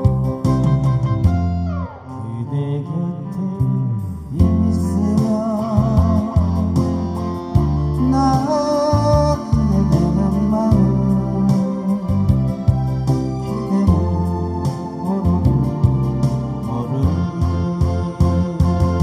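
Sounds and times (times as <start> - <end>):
bass line: 0.0 - 19.0
guitar chords: 0.0 - 19.0
wavering melody line: 4.4 - 19.0.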